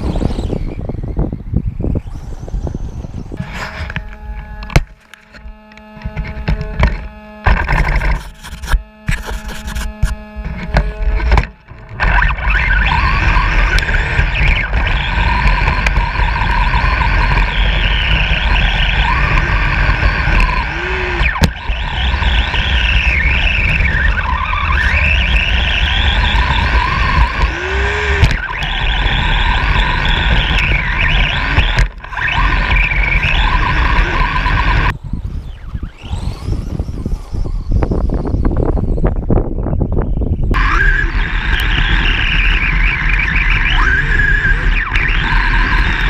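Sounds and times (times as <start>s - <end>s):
truck engine revving: 8.8s - 35.0s, 35.6s - 38.0s, 40.6s - 46.0s.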